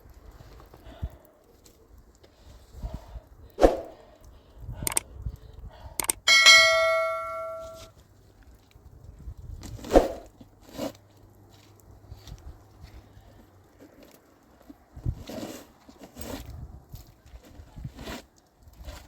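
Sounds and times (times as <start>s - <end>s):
sharp knocks: 6.0s - 7.8s
metal object struck and ringing: 6.0s - 7.9s.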